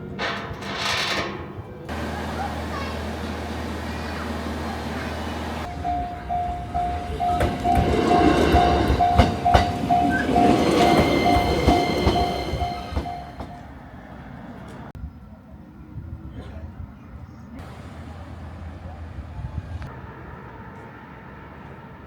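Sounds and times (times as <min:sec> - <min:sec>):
train wheels rumbling and knocking: 0:00.0 - 0:14.9
level crossing bell ringing: 0:01.9 - 0:13.8.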